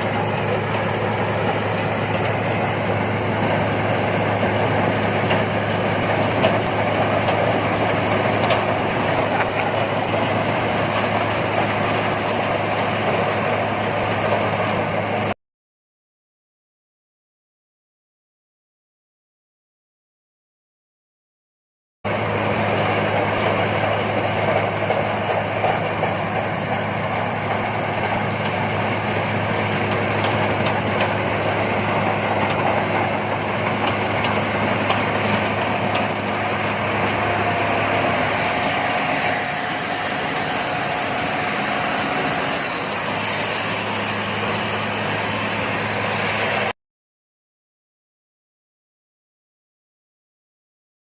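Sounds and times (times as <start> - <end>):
harvester engine humming: 0.0 - 15.3, 22.1 - 46.7.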